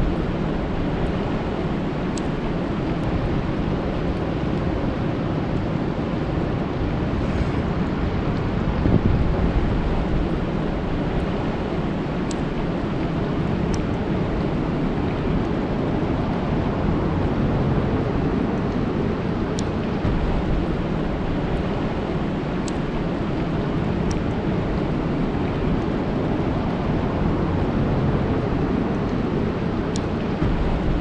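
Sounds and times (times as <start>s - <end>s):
rain falling on water: 0.0s - 7.0s, 8.2s - 31.0s
deep rumble: 0.0s - 31.0s
faint high ticks: 22.6s - 23.5s.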